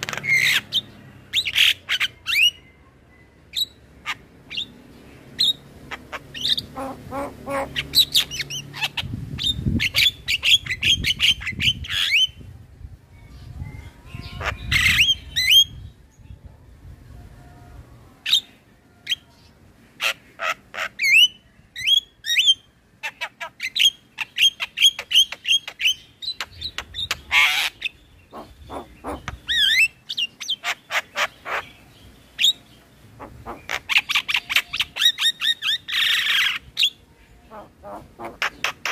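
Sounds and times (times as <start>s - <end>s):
grating bird calls: 20.0s - 38.9s.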